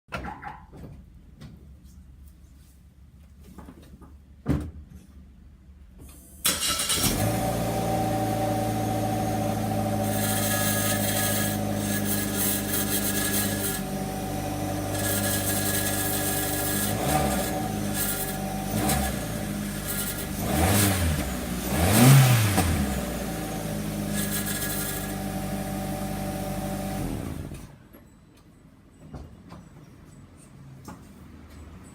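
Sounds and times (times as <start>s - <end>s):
car engine idling and revving: 7.0s - 10.2s, 16.9s - 27.6s.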